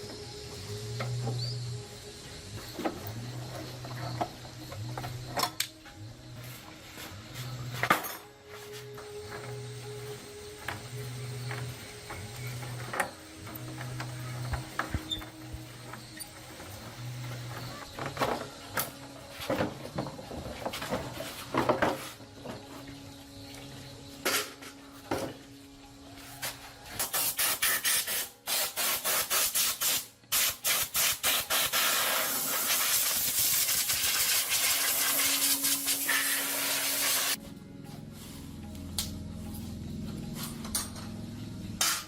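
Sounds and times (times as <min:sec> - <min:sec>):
pressurised spray hissing: 0:27.0 - 0:37.4.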